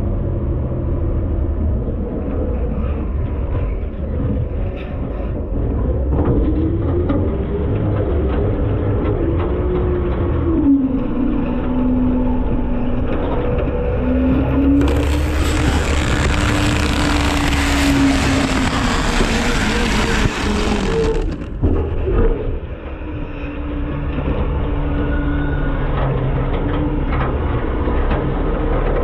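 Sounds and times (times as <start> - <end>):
garbage truck engine and hydraulics: 10.6 - 23.0
loud rushing hissing noise: 14.8 - 21.6.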